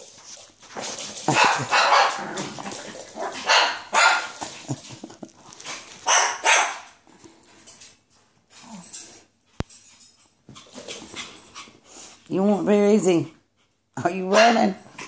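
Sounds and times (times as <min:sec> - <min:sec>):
dog barking: 0:01.3 - 0:02.4, 0:03.2 - 0:04.5, 0:06.0 - 0:06.9, 0:14.3 - 0:14.8.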